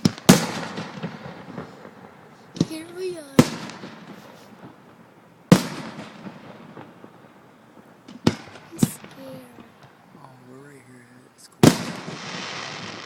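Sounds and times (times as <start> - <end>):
firework shells bursting: 7.8 - 10.0.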